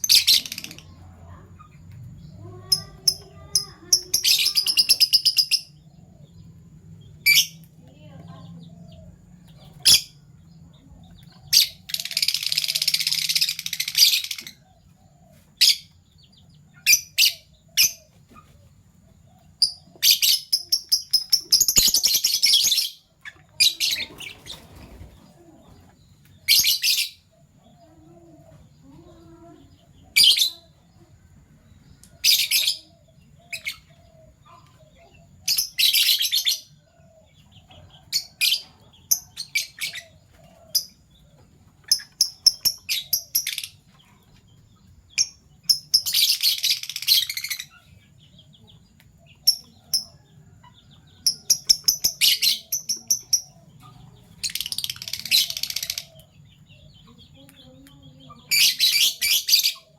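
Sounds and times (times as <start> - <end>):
rapid bird chattering: 0.0 - 1.8, 2.6 - 5.8, 11.4 - 14.8, 51.2 - 56.4
lovebirds chirping: 0.0 - 59.9.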